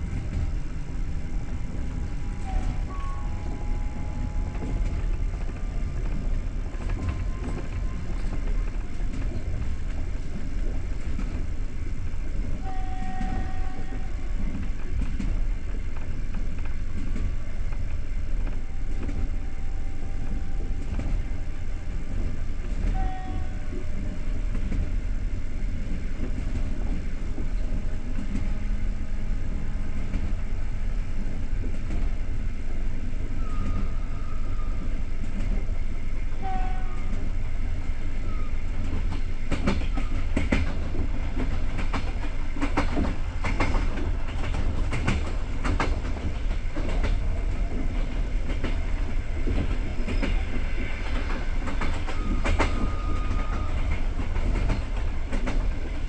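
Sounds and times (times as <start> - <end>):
wheels clicking over rail joints: 0.0 - 25.0, 38.7 - 56.0
train wheels rumbling: 0.0 - 56.0
faint high-pitched squeals: 1.8 - 5.9, 33.0 - 35.2, 49.9 - 54.1.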